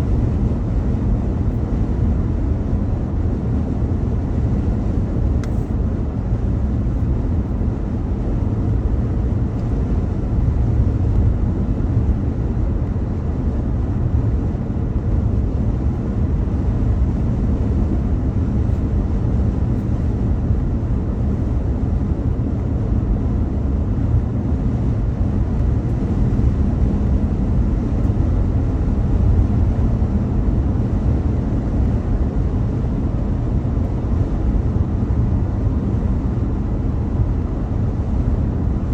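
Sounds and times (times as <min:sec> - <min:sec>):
car driving road rumble: 0:00.1 - 0:38.9.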